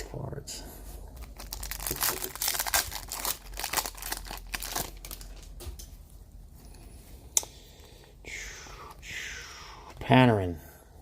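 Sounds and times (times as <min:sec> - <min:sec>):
wrapper crinkling and tearing: 0:01.2 - 0:05.6.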